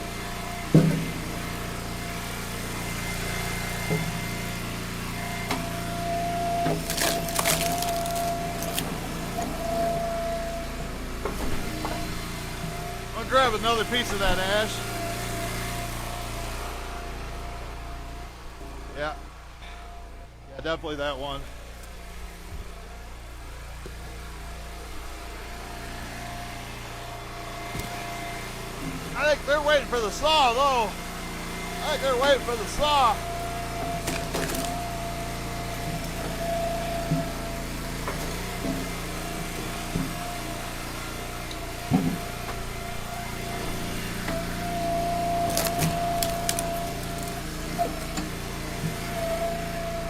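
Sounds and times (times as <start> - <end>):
log splitter engine running: 0.0 - 50.0
steady whine: 5.4 - 15.1
wood cracking and splintering: 6.6 - 9.5, 34.0 - 34.8, 45.4 - 47.7
faint high whine: 9.3 - 12.1.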